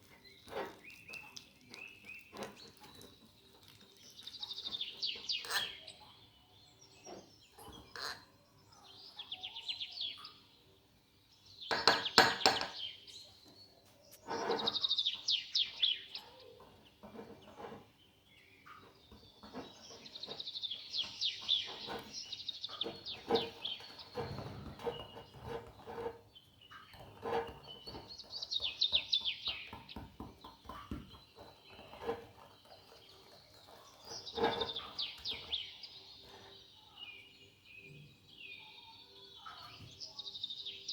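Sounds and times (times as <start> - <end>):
birds chirping in trills: 0.0 - 40.9
knocks and clinks: 11.7 - 12.8.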